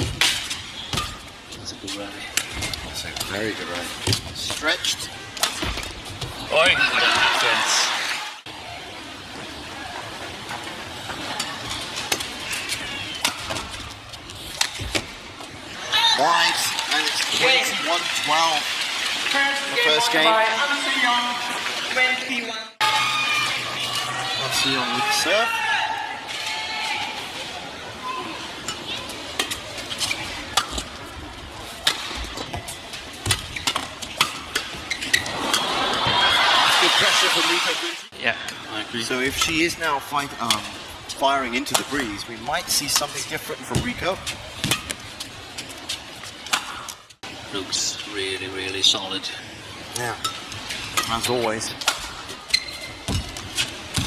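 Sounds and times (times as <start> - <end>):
arena crowd noise: 0.0 - 54.0
shoes squeaking on court: 28.6 - 35.4, 52.0 - 54.0
rackets striking shuttlecock: 51.8 - 52.3
shoe squeaks on court: 52.5 - 53.2.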